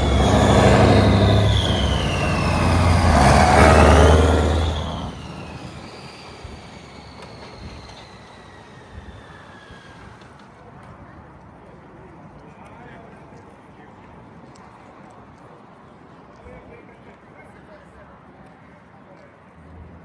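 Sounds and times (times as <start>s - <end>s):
diesel engine running loud: 0.0s - 9.8s
engine whine winding down: 0.0s - 10.6s.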